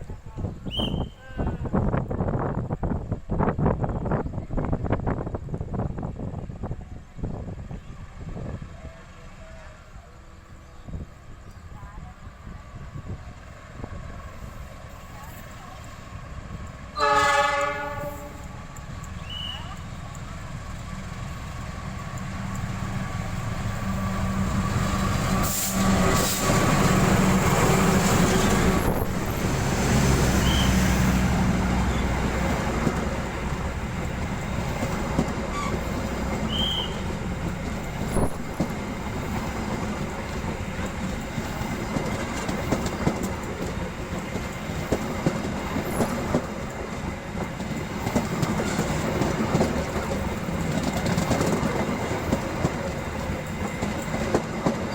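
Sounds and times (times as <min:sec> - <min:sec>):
train rumble with sharp clicks: 0:00.0 - 0:54.9
train wheels clattering: 0:16.6 - 0:54.9.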